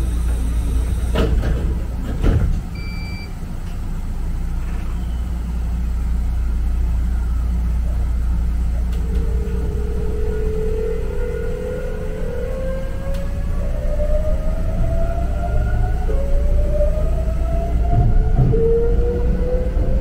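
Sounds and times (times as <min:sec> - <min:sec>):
train cab running rumble: 0:00.0 - 0:20.0
short electronic beep: 0:02.8 - 0:03.3
rising whine: 0:08.7 - 0:20.0.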